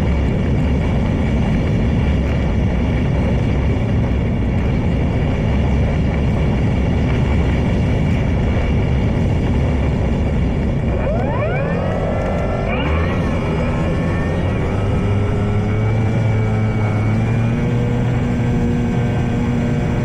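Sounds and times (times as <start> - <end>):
wind buffeting microphone: 0.0 - 20.0
electric motor whine: 10.8 - 19.8.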